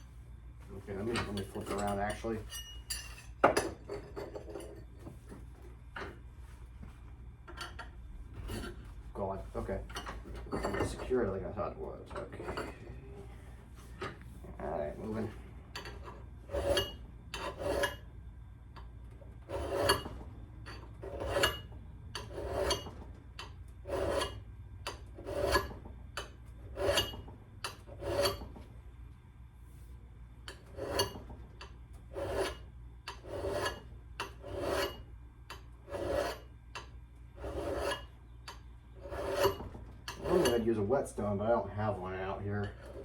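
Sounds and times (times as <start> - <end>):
file scraping steel axe edge: 15.8 - 18.1, 19.5 - 20.1, 20.7 - 28.5, 30.5 - 40.8.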